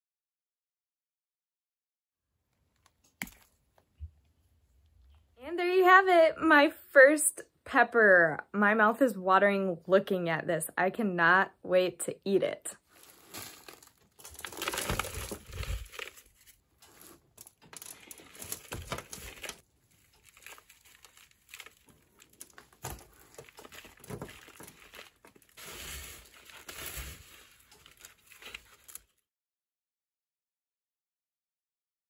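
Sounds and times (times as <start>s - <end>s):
soil rustling in plastic pot: 12.8s - 29.2s.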